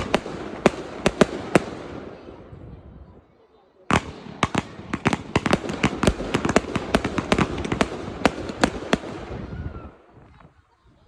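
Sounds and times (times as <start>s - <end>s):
fireworks crackle: 0.0s - 2.4s, 3.9s - 10.6s
fireworks bangs and cracks: 0.0s - 2.6s, 3.9s - 9.8s.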